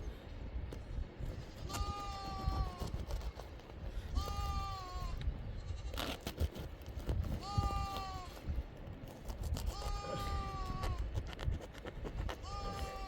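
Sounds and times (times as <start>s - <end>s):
sheep or goat bleating: 1.6s - 3.0s, 4.1s - 6.2s, 7.4s - 8.4s, 9.7s - 11.2s, 12.4s - 13.0s.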